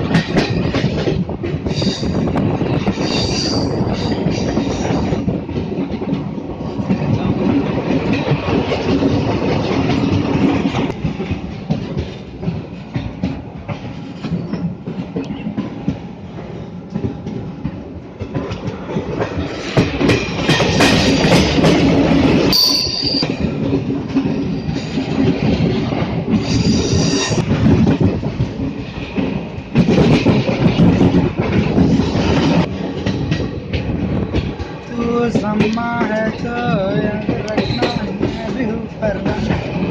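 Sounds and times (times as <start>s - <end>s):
train wheels on rails: 0.0s - 39.9s.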